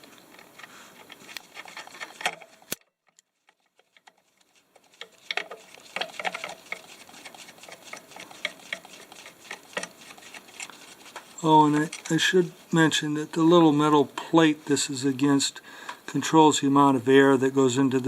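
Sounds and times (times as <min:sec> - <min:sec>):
small metal parts clicking: 0:00.0 - 0:12.4.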